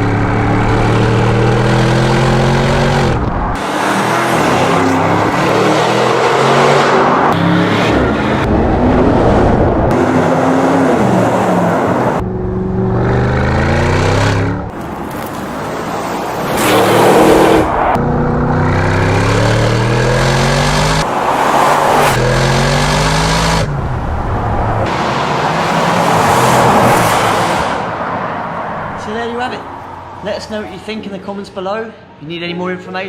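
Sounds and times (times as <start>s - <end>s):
car engine accelerating hard: 16.4s - 27.8s.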